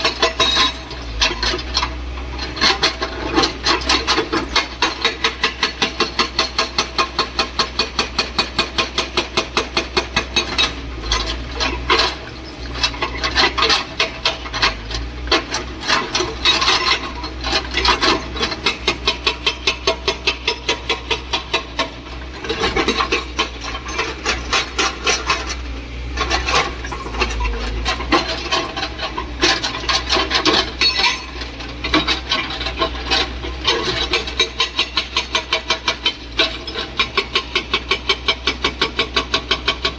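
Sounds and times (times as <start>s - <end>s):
hydraulic breaker hammering: 29.5s - 36.2s.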